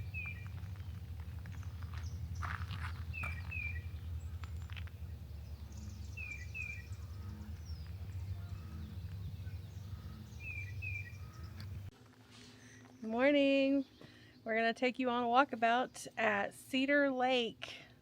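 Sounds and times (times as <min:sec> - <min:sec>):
low outdoor rumble: 0:00.0 - 0:12.1.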